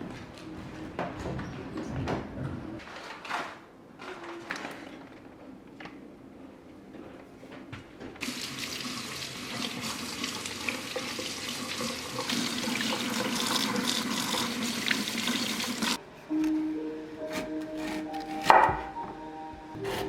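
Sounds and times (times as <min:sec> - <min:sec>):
tap water running into sink: 0:08.2 - 0:16.0.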